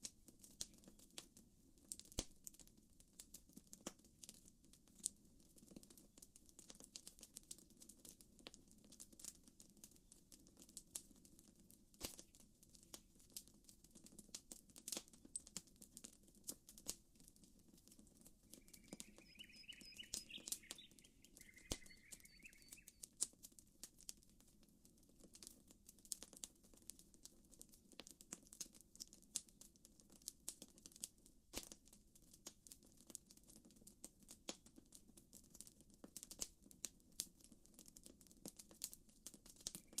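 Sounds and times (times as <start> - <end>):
campfire crackling: 0.0 - 33.2, 35.6 - 40.0
bird chirping: 18.6 - 23.0, 39.7 - 40.0.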